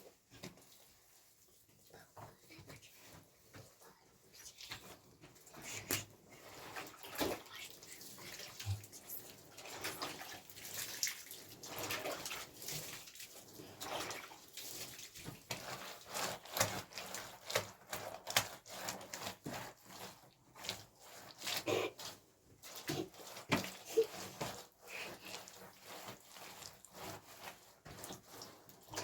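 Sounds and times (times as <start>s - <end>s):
water splashing in wet soil: 5.8s - 19.3s
scraping in wet soil: 13.8s - 29.0s.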